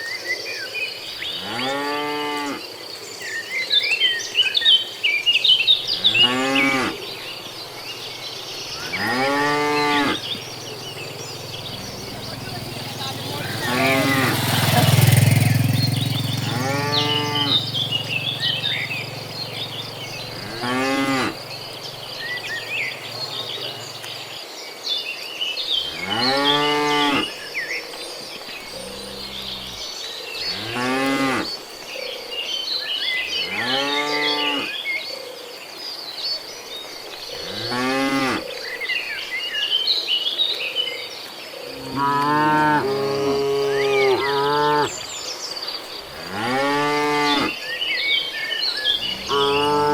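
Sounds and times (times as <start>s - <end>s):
insects chirping: 0.0s - 49.9s
cattle mooing: 1.3s - 2.6s, 5.8s - 24.2s, 25.8s - 27.3s, 28.6s - 31.6s, 33.5s - 34.7s, 37.4s - 38.4s, 41.8s - 45.1s, 46.0s - 47.6s, 48.9s - 49.9s.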